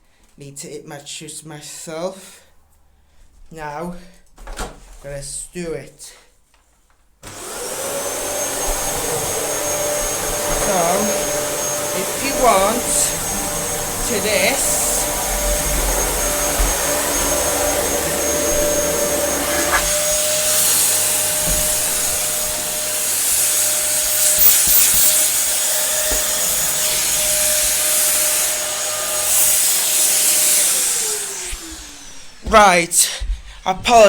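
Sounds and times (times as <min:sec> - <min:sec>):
vacuum cleaner running: 0:07.2 - 0:32.5.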